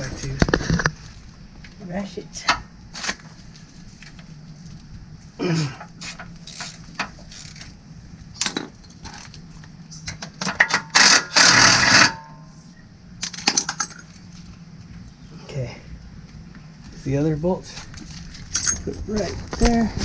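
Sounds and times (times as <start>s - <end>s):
rapid ratchet clicking: 10.6s - 12.2s
metallic clinks and knocks: 18.4s - 19.0s.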